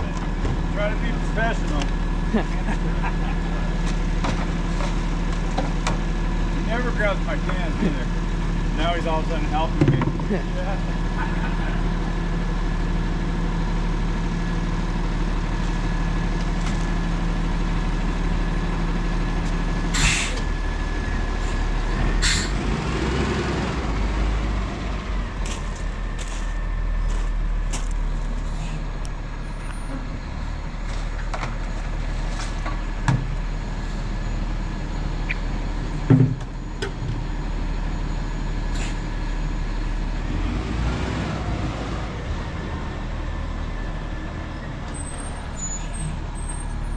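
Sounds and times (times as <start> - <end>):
garbage truck engine hum: 0.0 - 46.9
sharp air hisses: 19.9 - 20.5, 22.2 - 22.6.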